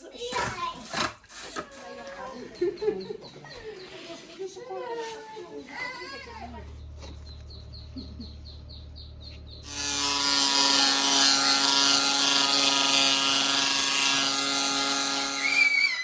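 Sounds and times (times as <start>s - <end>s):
small machine humming and hissing: 9.7s - 16.0s.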